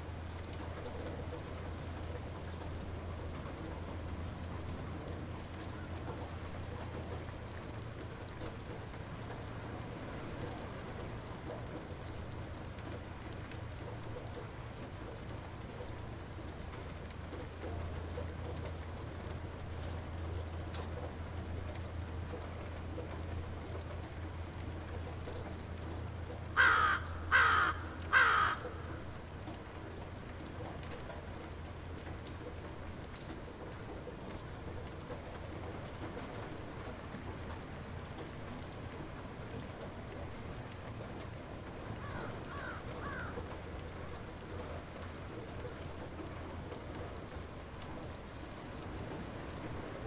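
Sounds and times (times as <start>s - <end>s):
light rain falling: 0.0s - 50.0s
bird harsh calls: 26.6s - 28.9s.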